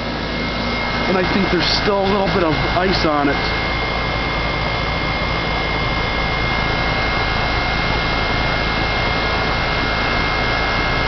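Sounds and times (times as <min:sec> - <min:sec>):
heat pump unit running: 0:00.0 - 0:11.0
thin high whine: 0:00.0 - 0:11.0.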